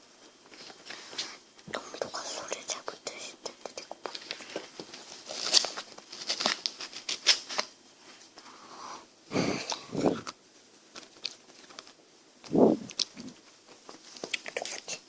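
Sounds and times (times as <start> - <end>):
plastic wrapper crinkling: 3.7 - 7.8, 10.2 - 15.0
dull low sounds: 12.4 - 13.4.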